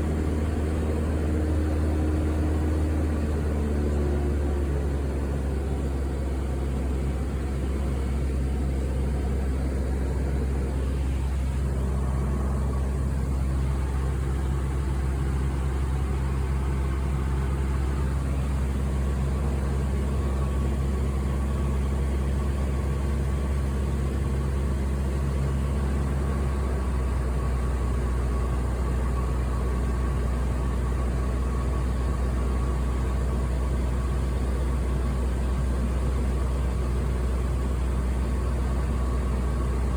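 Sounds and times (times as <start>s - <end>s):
airliner cabin engine drone: 0.0s - 25.5s.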